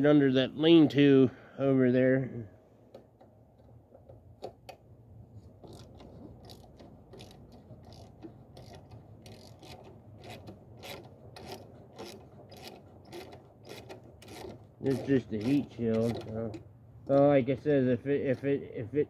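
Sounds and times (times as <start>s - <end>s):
metal scraping: 5.4s - 16.7s
ratchet wrench clicking: 5.7s - 16.4s.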